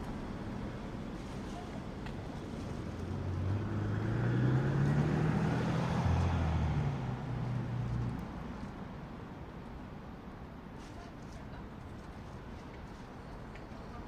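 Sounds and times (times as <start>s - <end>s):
motor vehicle passing by: 2.5s - 8.4s.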